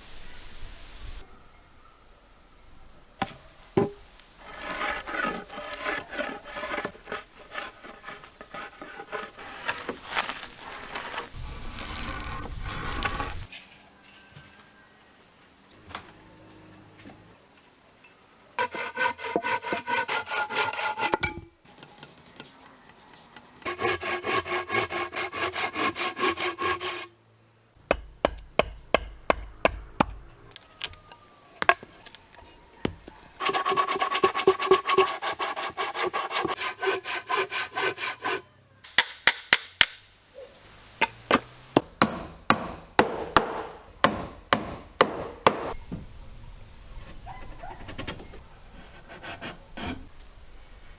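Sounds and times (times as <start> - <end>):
hand saw cutting wood: 4.4 - 13.5, 18.6 - 21.2, 23.7 - 27.1, 33.4 - 38.4, 41.4 - 45.8, 48.8 - 50.1.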